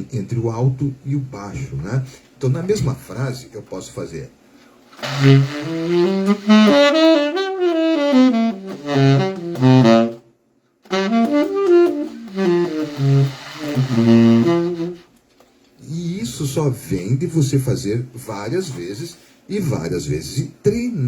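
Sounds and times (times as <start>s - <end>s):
saxophone playing: 5.0s - 10.2s, 10.9s - 15.1s.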